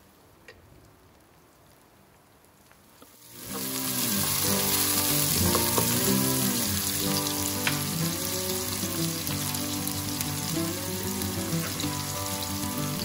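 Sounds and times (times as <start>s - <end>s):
onions sizzling in hot oil: 2.9s - 13.0s.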